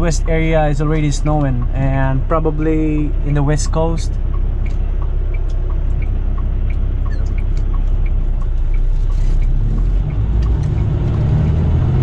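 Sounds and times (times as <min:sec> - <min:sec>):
truck engine running: 0:00.0 - 0:12.0
turn signal relay clicking: 0:03.8 - 0:11.3.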